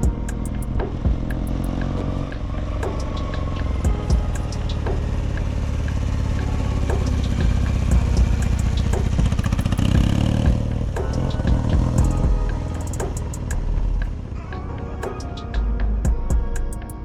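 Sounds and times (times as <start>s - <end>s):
motorcycle engine running: 0.0s - 12.4s.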